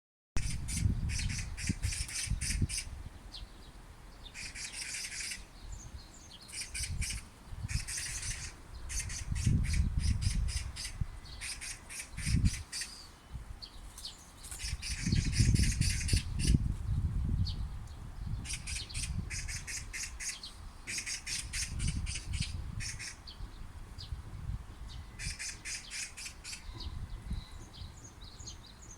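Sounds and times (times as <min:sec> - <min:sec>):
magpies rattling chatter calls: 0:00.4 - 0:02.9, 0:04.2 - 0:13.1, 0:14.0 - 0:16.6, 0:18.4 - 0:23.4, 0:25.2 - 0:26.9.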